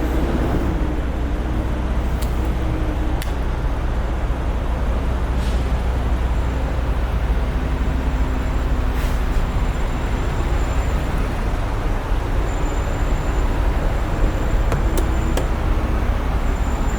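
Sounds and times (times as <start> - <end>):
diesel truck engine idling: 10.6 - 16.9
sharp clicks: 14.7 - 15.7.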